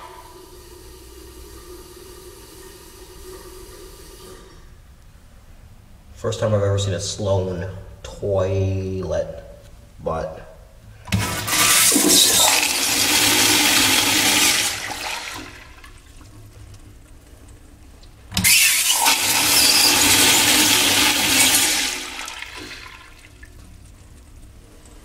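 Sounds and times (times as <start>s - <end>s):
toilet flushing: 0.0s - 4.8s, 11.0s - 17.0s, 18.2s - 25.0s.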